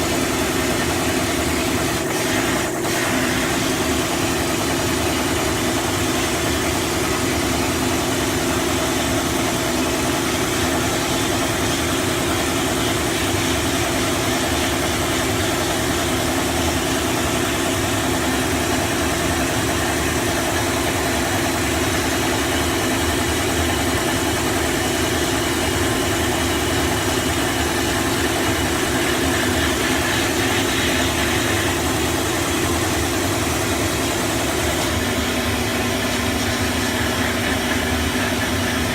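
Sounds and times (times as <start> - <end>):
air compressor running: 0.0 - 38.9
hiss of air and slurry spray: 0.9 - 4.3, 27.8 - 32.6.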